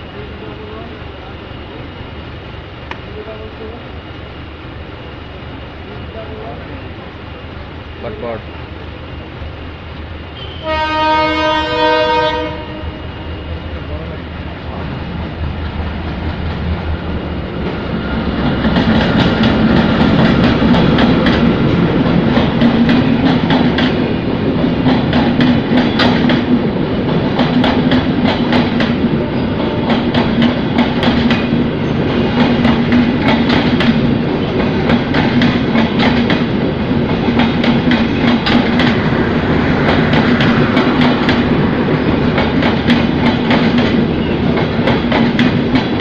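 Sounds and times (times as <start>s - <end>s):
passenger train passing: 0.0s - 46.0s
locomotive horn: 10.4s - 13.4s.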